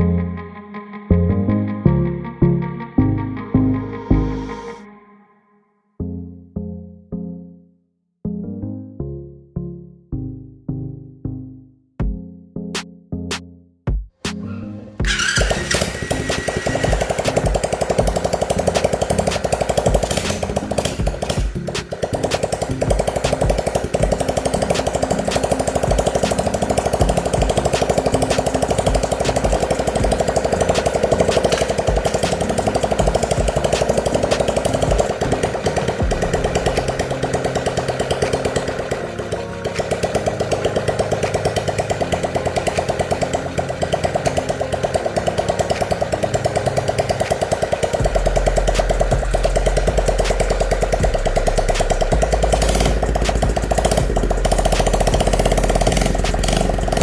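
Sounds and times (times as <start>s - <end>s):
machine running with rapid pulse: 15.0s - 57.0s.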